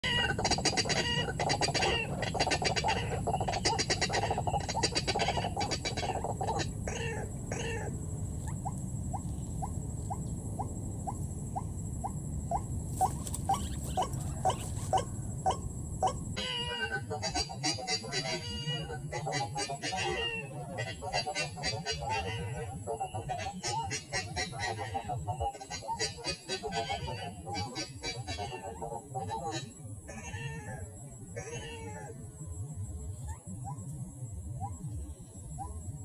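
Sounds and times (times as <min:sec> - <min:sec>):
low steady rumble: 0:00.0 - 0:25.5
bird harsh pulsed croaking: 0:00.0 - 0:30.8.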